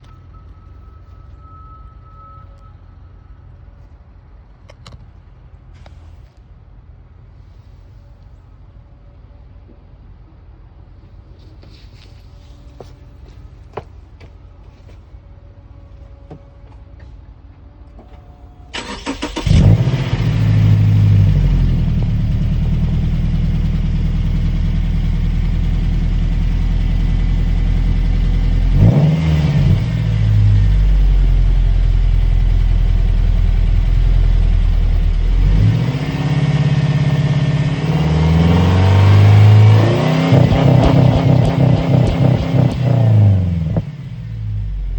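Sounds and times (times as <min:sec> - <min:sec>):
car engine starting and revving: 0:18.8 - 0:44.9.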